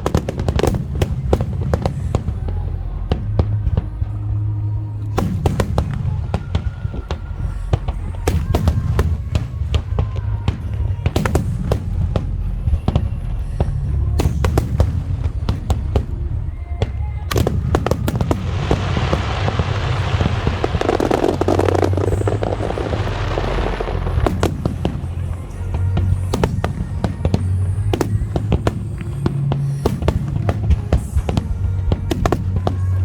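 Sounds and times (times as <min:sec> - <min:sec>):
continuous low rumble: 0:00.0 - 0:33.0
fireworks bangs: 0:00.0 - 0:33.0
music playing: 0:00.0 - 0:33.0.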